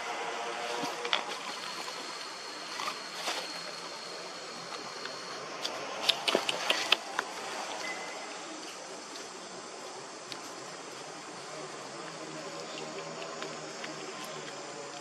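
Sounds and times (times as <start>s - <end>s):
steady background noise: 0.0s - 15.0s
sharp clicks and taps: 5.6s - 7.3s
faint high steady tone: 7.8s - 8.6s.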